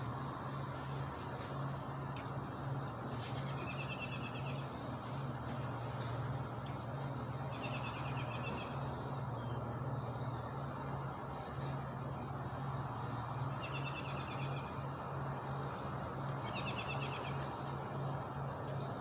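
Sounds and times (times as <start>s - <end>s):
steady low hum: 0.0s - 19.0s
songbird trilling: 7.5s - 8.8s.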